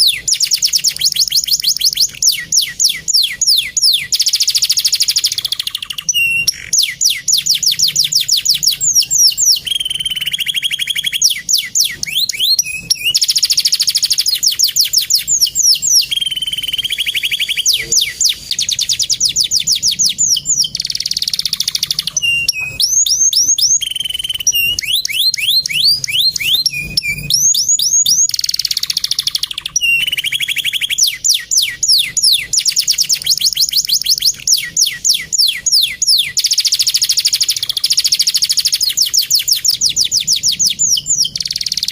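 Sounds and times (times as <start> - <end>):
canary singing trills: 0.0 - 41.9.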